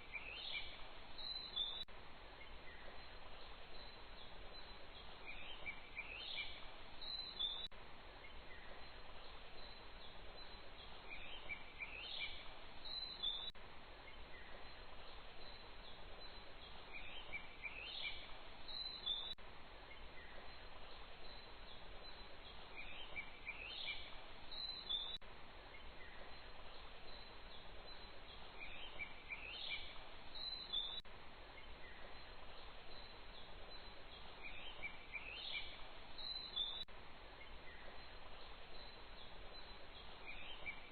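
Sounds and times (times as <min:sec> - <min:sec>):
outdoor ambience hiss: 0:00.0 - 0:40.9.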